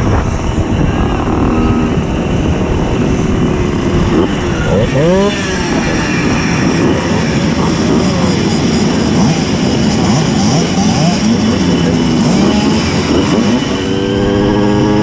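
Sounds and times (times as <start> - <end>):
mopeds revving: 0.0 - 15.0.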